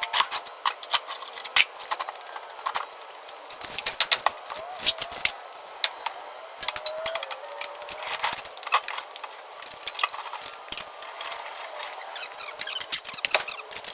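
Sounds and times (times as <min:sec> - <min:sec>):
small tools clattering and clinking: 0:00.0 - 0:05.4.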